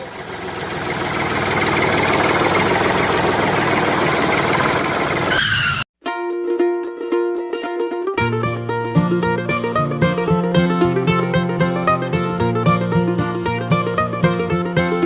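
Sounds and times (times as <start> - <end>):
plucked-string music: 6.0 - 15.0.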